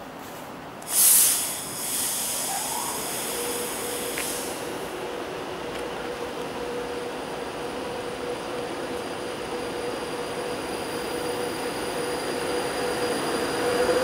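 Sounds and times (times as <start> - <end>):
electric train whine and hum: 0.5 - 14.0
air hiss burst: 0.8 - 4.7.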